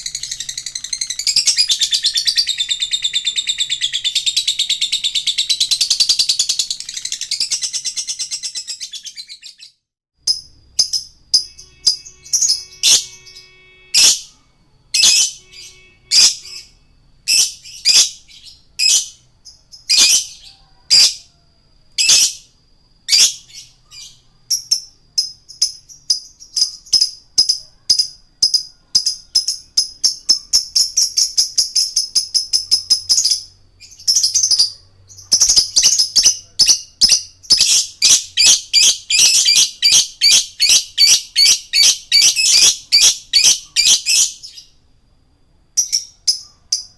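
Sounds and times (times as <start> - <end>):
bird chattering: 0.0 - 9.6, 23.1 - 44.6
sharp high bird chirps: 0.0 - 44.9, 45.7 - 46.9.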